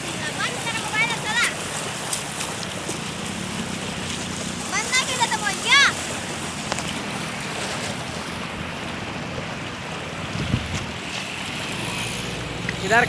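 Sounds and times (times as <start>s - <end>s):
floodwater rushing: 0.0s - 13.0s
wind buffeting microphone: 7.2s - 12.6s.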